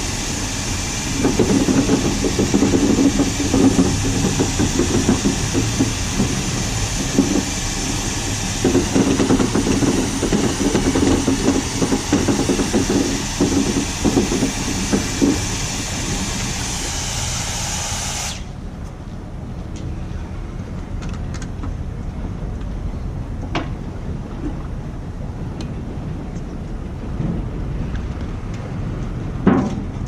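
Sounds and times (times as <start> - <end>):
machine running: 0.0 - 18.6
strong hiss: 0.0 - 18.6.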